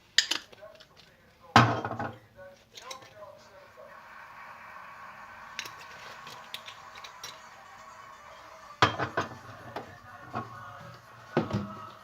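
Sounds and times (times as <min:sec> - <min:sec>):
kitchenware clinking and knocking: 0:01.6 - 0:02.2, 0:08.8 - 0:10.4.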